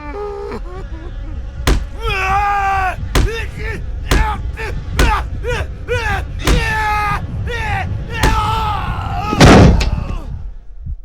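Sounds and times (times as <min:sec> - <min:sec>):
heavy bangs: 0:01.7 - 0:09.8
high wailing cries: 0:01.7 - 0:10.0.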